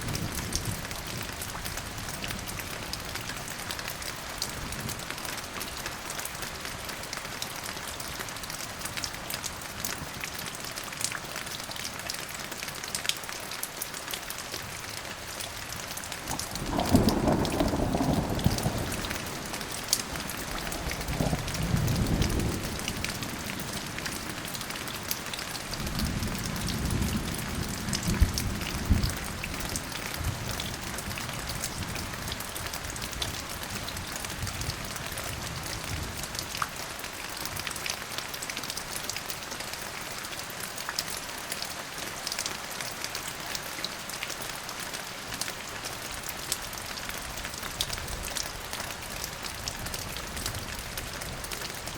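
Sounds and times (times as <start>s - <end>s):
rain pattering: 0.0s - 51.9s
low rolls of thunder: 16.3s - 24.2s.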